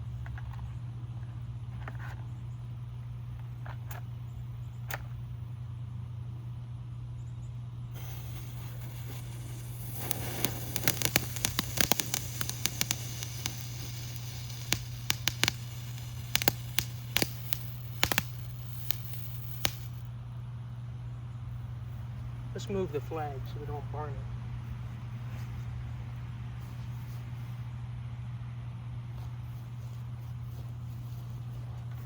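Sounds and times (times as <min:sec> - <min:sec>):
firework fountain hissing: 0:08.0 - 0:20.1
sharp crackling pops: 0:08.0 - 0:20.1.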